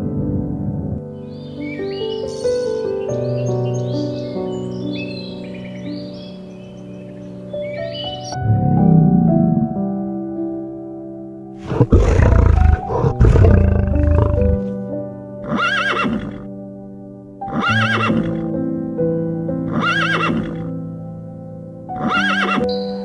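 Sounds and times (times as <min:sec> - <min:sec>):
soft piano music: 0:00.0 - 0:23.0
loud low rumbling: 0:08.4 - 0:09.9, 0:11.6 - 0:14.7
horse whinnying: 0:11.6 - 0:14.6, 0:15.4 - 0:16.5, 0:17.5 - 0:18.5, 0:19.7 - 0:20.7, 0:22.0 - 0:22.7.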